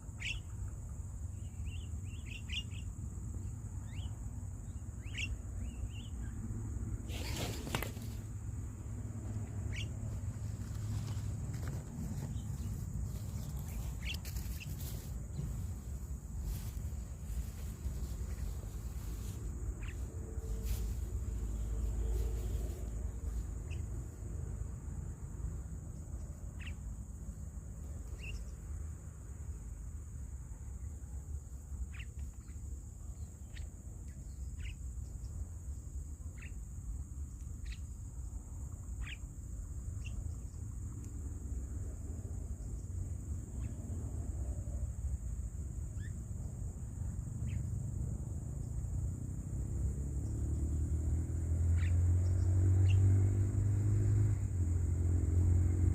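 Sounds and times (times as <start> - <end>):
bird chirps: 0.0 - 6.4, 9.4 - 15.7, 17.3 - 20.9, 23.6 - 24.0, 26.0 - 26.9, 27.9 - 28.7, 31.9 - 35.4, 36.2 - 36.7, 37.3 - 39.3, 39.9 - 41.1, 45.9 - 46.5, 47.4 - 47.7, 51.7 - 53.1
high insect drone: 0.0 - 55.9
vehicle engine rumble approaching: 2.9 - 30.4, 46.4 - 55.9.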